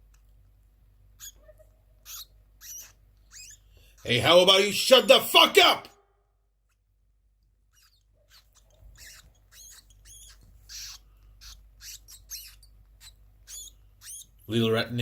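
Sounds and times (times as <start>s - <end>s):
small rodent squeaking: 1.0s - 4.4s, 6.6s - 15.0s.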